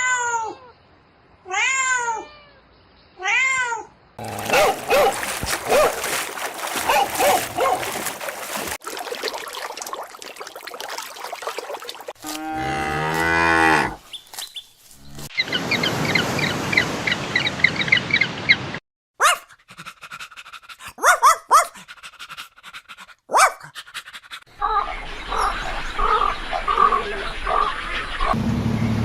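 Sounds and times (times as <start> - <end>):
cow mooing: 4.2 - 4.9, 12.2 - 14.0.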